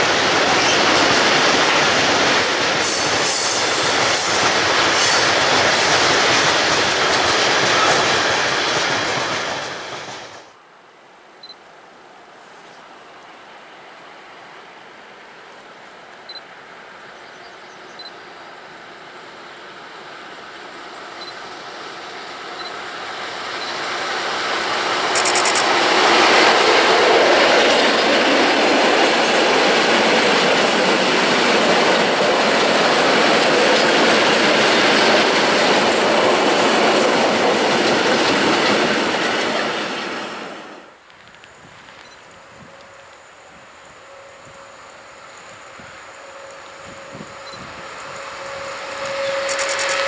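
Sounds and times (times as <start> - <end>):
diesel locomotive passing: 0.0 - 10.6, 16.3 - 50.0
wagons rolling past: 47.4 - 50.0.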